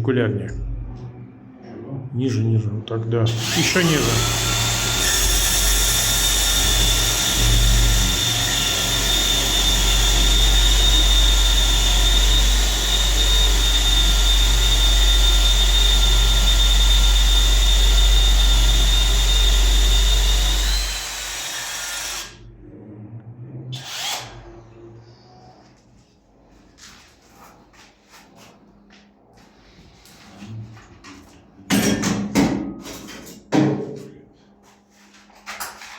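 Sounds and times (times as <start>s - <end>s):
power tool cutting concrete: 3.3s - 22.3s.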